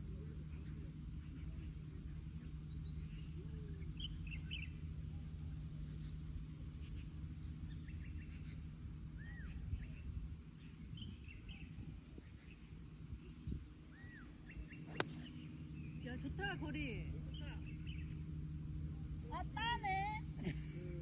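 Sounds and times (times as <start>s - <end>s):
steady low hum: 0.0s - 21.0s
small birds chirping: 0.5s - 4.8s, 9.2s - 16.6s.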